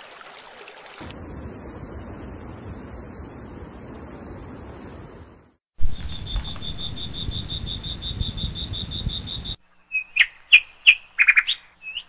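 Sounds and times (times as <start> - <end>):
low rumble: 1.1 - 9.4.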